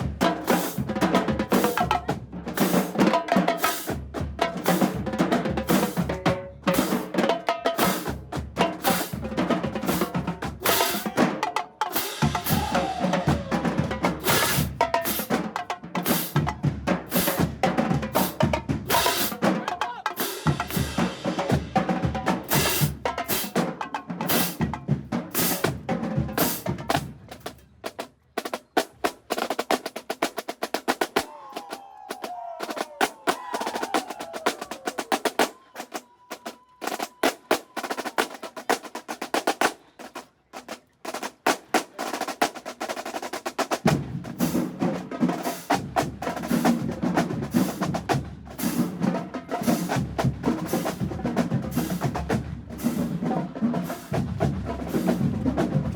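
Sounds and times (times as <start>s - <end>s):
snare drum rolls and rim shots: 0.0s - 55.9s
bass drums: 12.2s - 15.4s, 49.9s - 53.3s, 54.0s - 55.9s.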